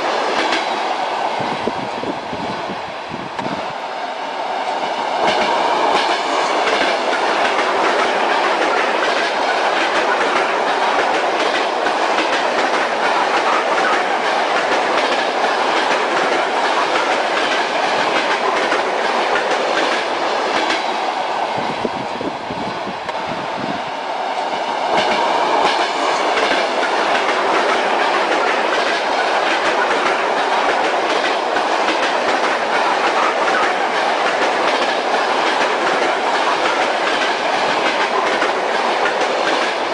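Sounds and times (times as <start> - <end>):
moving train rumble: 0.0 - 39.9
wheels clicking over rail joints: 5.2 - 20.8, 24.9 - 39.9.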